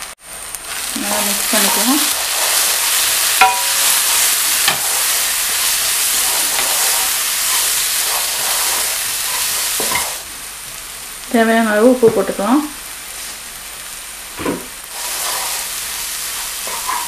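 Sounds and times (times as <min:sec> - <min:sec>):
food sizzling in oil: 0:00.0 - 0:17.0
wooden spatula scraping wok: 0:00.7 - 0:10.2, 0:14.4 - 0:17.0.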